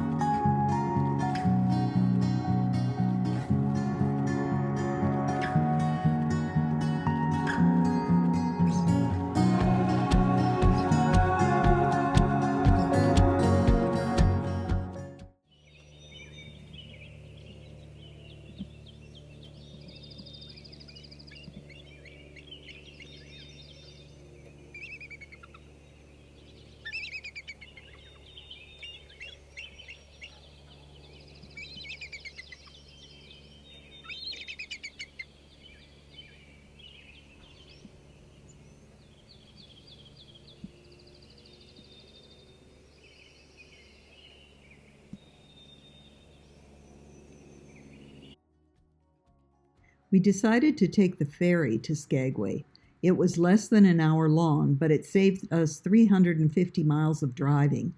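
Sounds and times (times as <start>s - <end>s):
steady low hum: 0.0s - 57.9s
songbirds singing: 15.5s - 48.4s.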